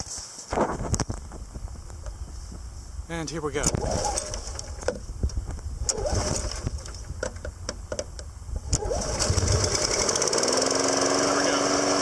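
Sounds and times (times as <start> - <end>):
recoil starter clicks and rattles: 3.6 - 12.0
lawn mower engine running: 3.7 - 5.2, 5.8 - 12.0.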